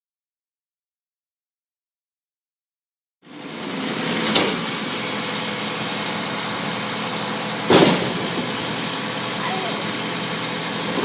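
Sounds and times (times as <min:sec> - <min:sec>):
garbage truck engine idling: 0:03.3 - 0:11.0.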